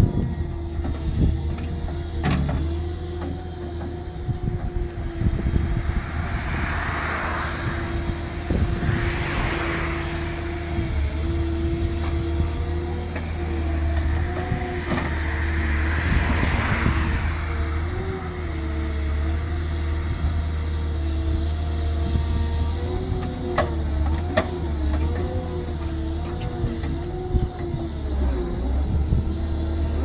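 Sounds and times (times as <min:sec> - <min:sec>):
excavator diesel engine droning: 0:00.0 - 0:30.0
wavering whine: 0:04.3 - 0:11.9.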